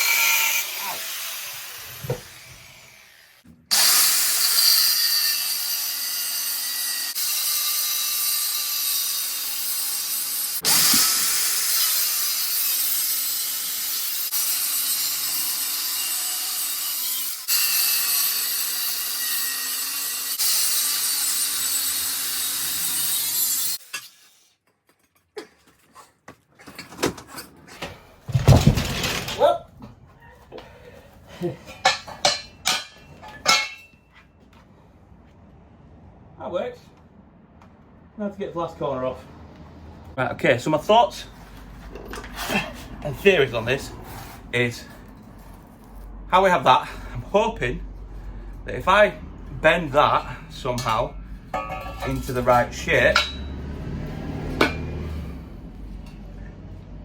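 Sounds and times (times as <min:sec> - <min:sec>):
cutting disc grinding steel: 0:00.0 - 0:24.3, 0:50.0 - 0:56.3.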